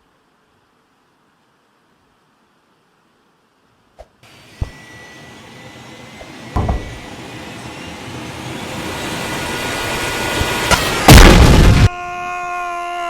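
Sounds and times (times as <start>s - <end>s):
rushing mechanical whine: 4.2s - 11.9s
sharp knocks: 6.5s - 7.1s.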